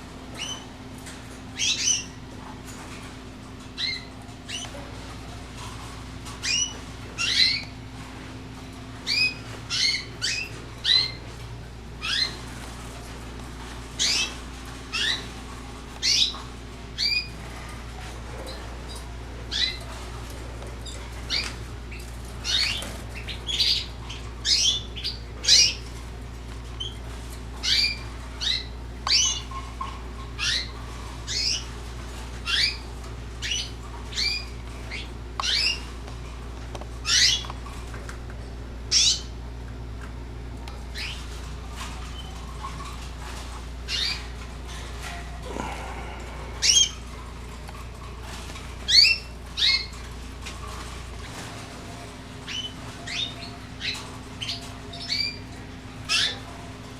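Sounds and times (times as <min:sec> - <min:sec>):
steady low hum: 0:00.0 - 0:56.9
canaries calling: 0:00.3 - 0:02.4, 0:03.6 - 0:05.1, 0:05.8 - 0:08.0, 0:08.8 - 0:11.4, 0:12.0 - 0:36.1, 0:37.0 - 0:37.7, 0:38.9 - 0:39.4, 0:40.9 - 0:56.7.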